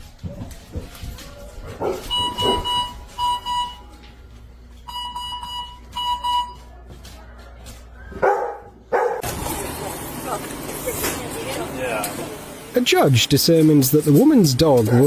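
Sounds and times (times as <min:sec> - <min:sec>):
electronic alarm beeping: 0:02.1 - 0:03.9, 0:04.8 - 0:06.7.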